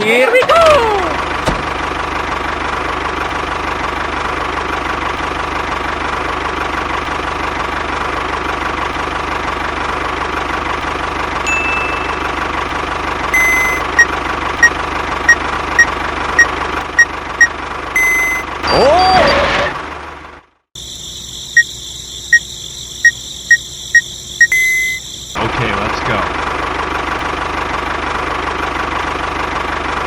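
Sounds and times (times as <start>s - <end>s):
tractor motor whine: 13.3s - 14.7s, 15.3s - 19.0s
long beep: 13.4s - 14.1s, 18.0s - 18.5s, 24.0s - 25.0s
short beeps: 13.4s - 14.7s, 17.4s - 18.8s, 24.4s - 25.0s.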